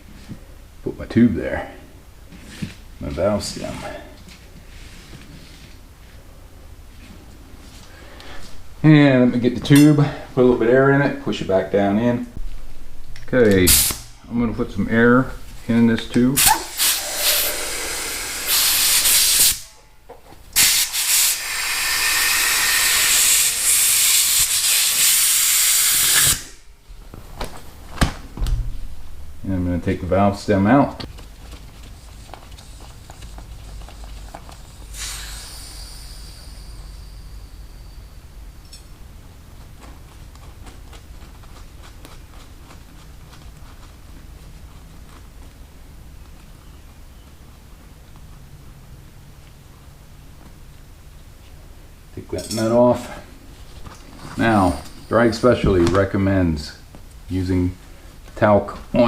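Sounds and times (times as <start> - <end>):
low steady hum: 0.0 - 18.5, 26.5 - 59.0
compressed air hissing: 13.7 - 14.2, 16.4 - 19.8, 20.6 - 26.6, 34.5 - 38.3.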